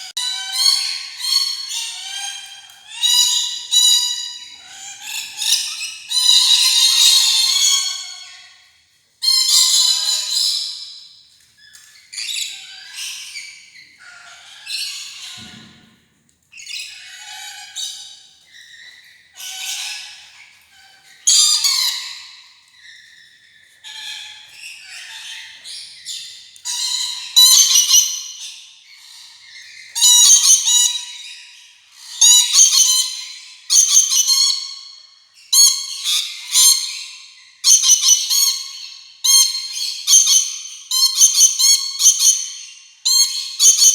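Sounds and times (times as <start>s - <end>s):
parrot squawking: 21.3s - 22.1s.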